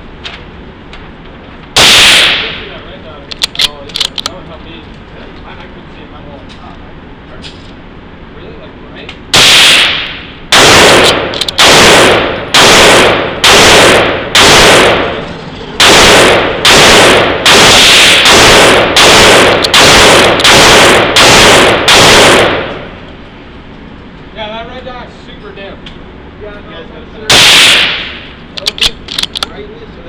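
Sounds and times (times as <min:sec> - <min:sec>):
rifle shots echoing: 0:01.8 - 0:02.8, 0:09.3 - 0:23.0, 0:27.3 - 0:28.4.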